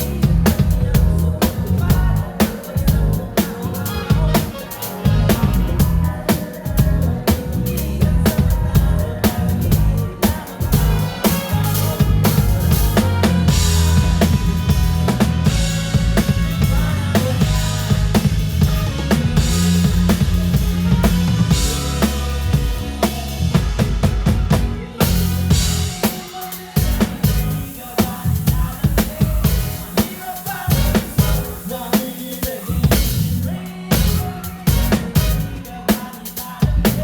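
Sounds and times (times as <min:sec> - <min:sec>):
live band playing pop song: 0:00.0 - 0:37.0
drum kit hits: 0:09.7 - 0:36.8.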